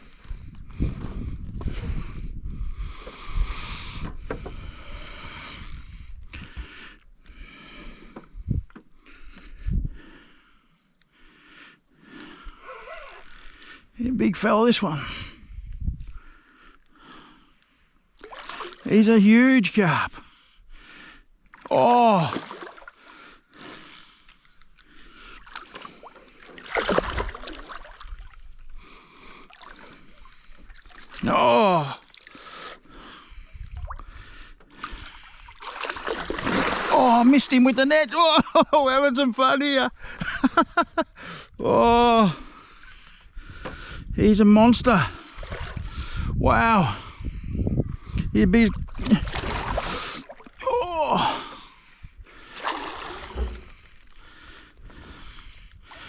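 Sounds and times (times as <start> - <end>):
fishing reel whirring: 4.8 - 7.6, 12.6 - 14.1, 23.1 - 31.2
fish thrashing in water: 18.2 - 18.9, 25.4 - 28.4, 34.8 - 37.3, 48.8 - 50.6, 52.6 - 54.0.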